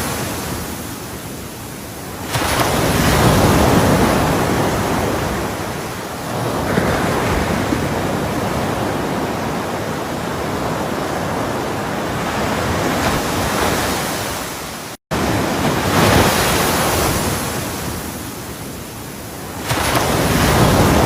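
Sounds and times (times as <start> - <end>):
ocean waves breaking: 0.0 - 21.0.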